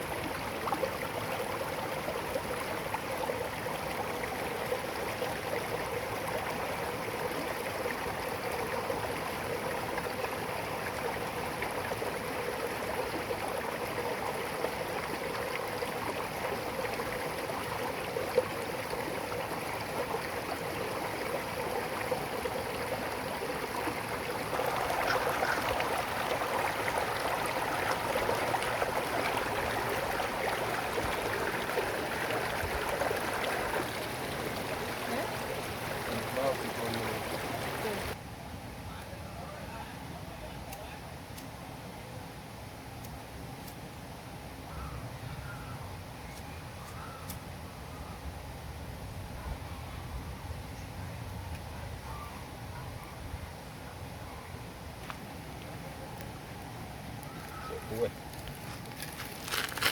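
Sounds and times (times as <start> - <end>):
stream of water running: 0.0 - 38.2, 51.3 - 59.9.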